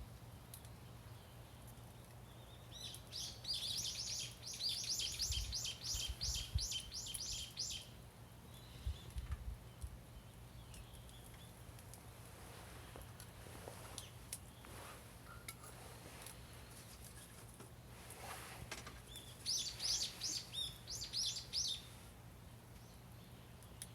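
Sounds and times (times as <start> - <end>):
bird singing high notes: 19.5 - 21.8.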